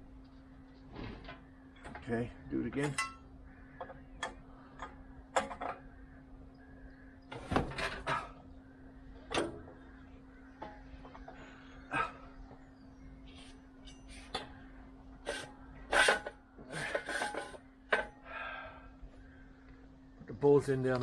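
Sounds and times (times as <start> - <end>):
steady low hum: 0.0 - 21.0
metal tools knocking and clanking: 2.7 - 5.8, 15.3 - 18.2.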